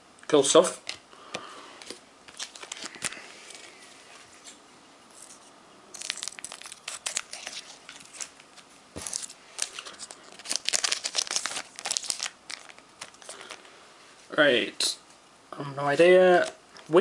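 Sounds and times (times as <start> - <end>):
foil wrapper crinkling and tearing: 5.9 - 8.4, 9.0 - 13.7.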